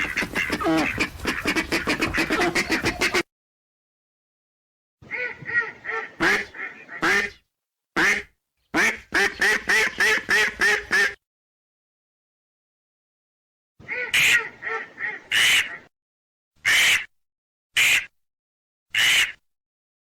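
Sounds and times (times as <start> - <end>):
ducks quacking: 0.0 - 3.2, 5.0 - 7.4, 8.0 - 11.2, 13.8 - 15.9, 19.0 - 19.4.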